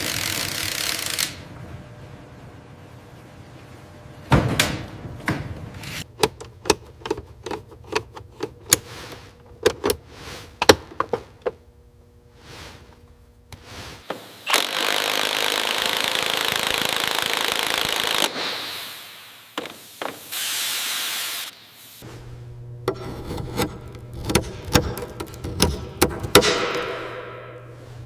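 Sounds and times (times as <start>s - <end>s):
mechanical clicks and knocks: 22.8s - 27.3s.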